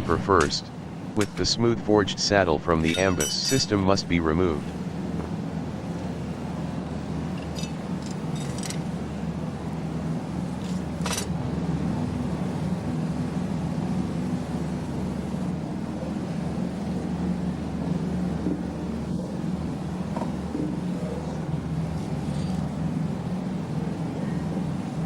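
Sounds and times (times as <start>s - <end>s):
machinery humming: 0.0s - 25.0s
metal clank: 2.8s - 3.7s.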